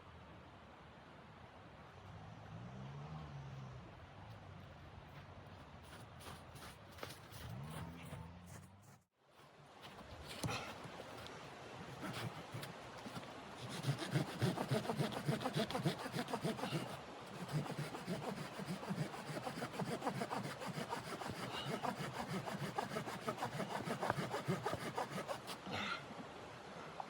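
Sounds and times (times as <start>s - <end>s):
hand saw cutting wood: 11.9s - 25.7s.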